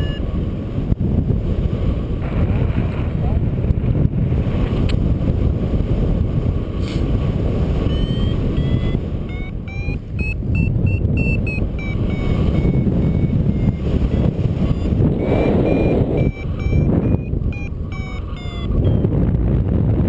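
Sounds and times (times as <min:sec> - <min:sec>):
variometer beeping: 0:00.0 - 0:00.3, 0:07.8 - 0:19.4
wind rumbling on microphone: 0:00.0 - 0:20.0.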